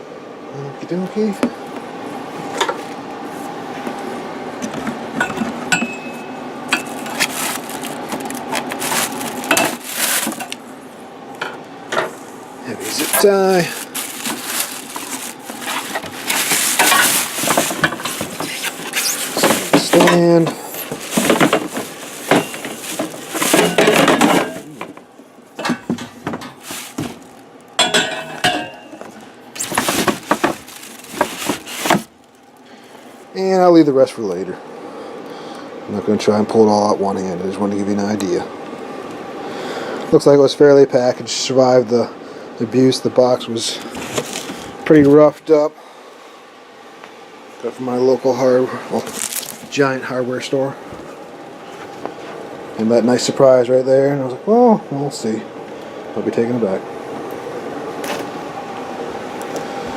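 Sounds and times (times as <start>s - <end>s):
packaging rustling: 6.7s - 10.6s, 12.8s - 25.0s, 26.6s - 27.8s, 29.0s - 32.6s, 44.0s - 44.7s, 49.0s - 49.8s.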